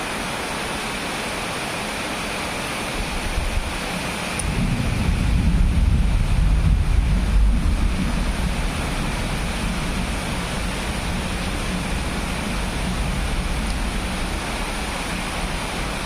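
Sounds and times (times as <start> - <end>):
thunder rumbling: 4.4 - 16.0.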